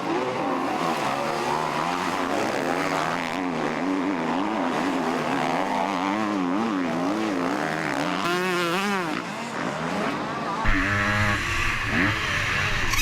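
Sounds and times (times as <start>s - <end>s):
motocross bike engines racing: 0.0s - 13.0s.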